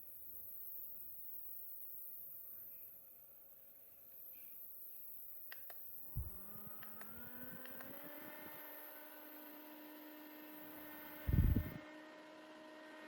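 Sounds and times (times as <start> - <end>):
small fan motor whirring: 0.0 - 13.0
quick clicks: 5.5 - 8.0.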